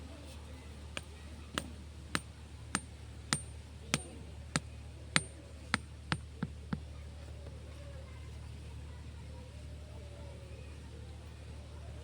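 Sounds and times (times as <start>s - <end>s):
tool striking bamboo: 1.0s - 6.9s.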